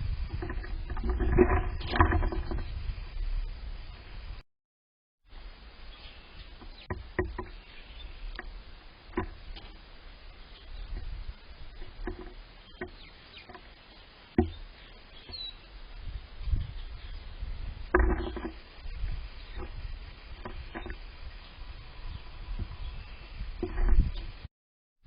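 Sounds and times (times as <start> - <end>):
wind on microphone: 0.0 - 4.4, 5.9 - 13.7, 14.3 - 24.5
songbird chirps: 5.3 - 24.3
sharp knocks: 14.3 - 14.6, 17.9 - 18.6.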